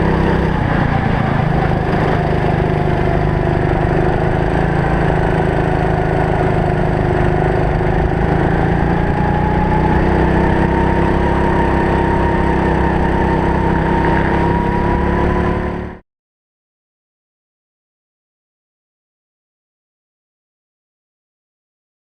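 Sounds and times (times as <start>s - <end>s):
kart engine running: 0.0s - 16.0s.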